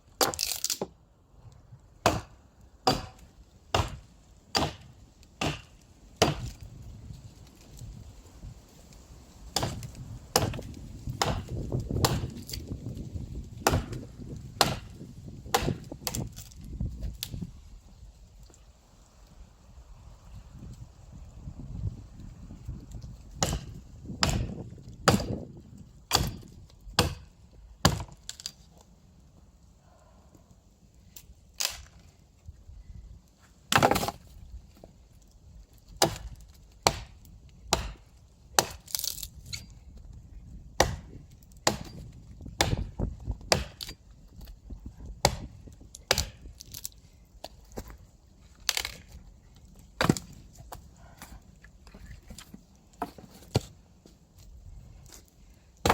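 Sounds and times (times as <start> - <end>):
axe chopping wood: 0.2 - 0.9, 2.0 - 6.7, 9.5 - 13.0, 13.6 - 16.6, 23.3 - 25.5, 26.1 - 28.5, 33.7 - 34.9, 35.9 - 39.6, 40.8 - 44.5, 45.2 - 46.9, 48.6 - 49.2, 50.0 - 51.3, 52.3 - 53.8.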